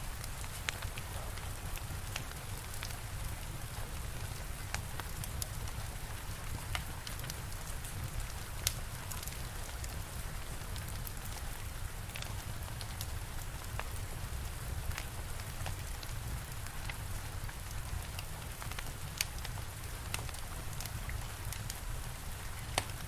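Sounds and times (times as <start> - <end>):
steady rain: 0.0 - 23.0
wood fire crackling: 0.0 - 23.0.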